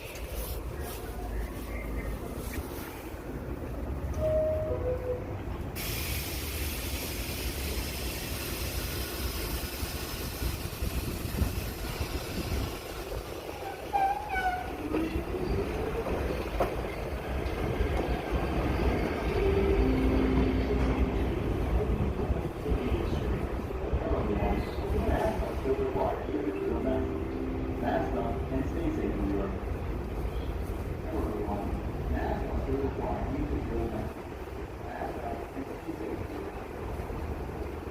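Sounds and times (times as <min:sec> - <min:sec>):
train rumble and rail noise: 0:00.0 - 0:37.9
two-note door chime: 0:04.2 - 0:05.2.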